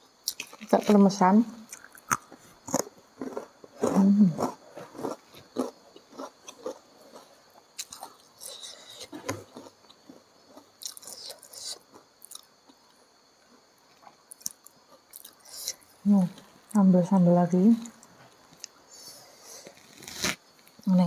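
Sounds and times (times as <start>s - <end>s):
chewing and wet mouth sounds: 1.7s - 12.9s.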